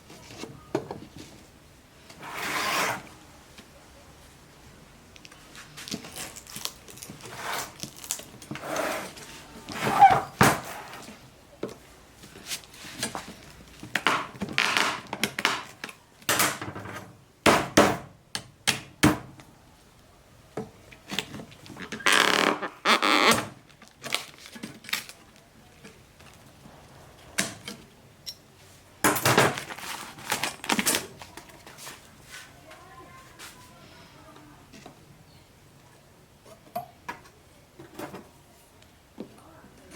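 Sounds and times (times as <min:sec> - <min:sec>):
hard objects scraping and rustling: 0:00.0 - 0:03.2, 0:05.2 - 0:16.0, 0:21.0 - 0:33.8.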